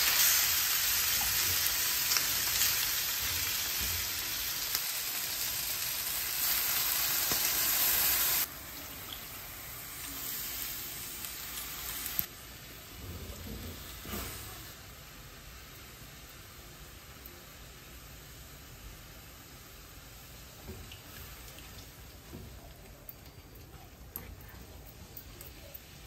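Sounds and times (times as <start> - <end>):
chicken sizzling in a pan: 0.0 - 23.0.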